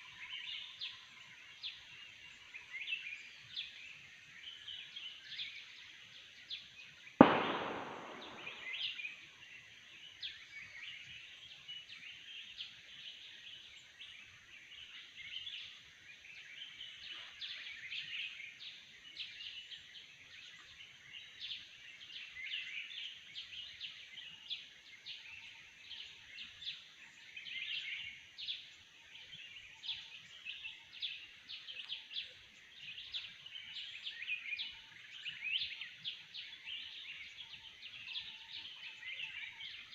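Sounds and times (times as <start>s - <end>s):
sharp loud bang: 7.2s - 8.9s.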